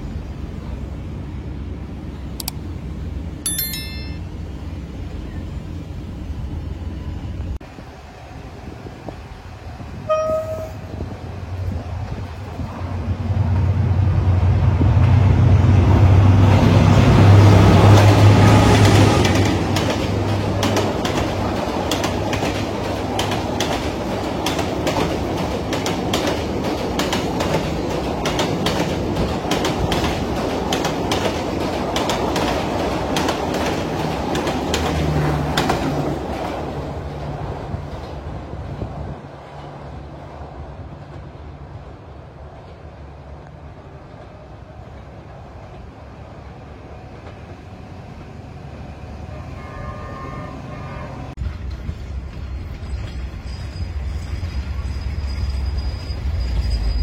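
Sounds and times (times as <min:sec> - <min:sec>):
train low hum: 0:00.0 - 0:57.0
train wheels clicking over rail joints: 0:17.7 - 0:38.3, 0:51.4 - 0:55.5.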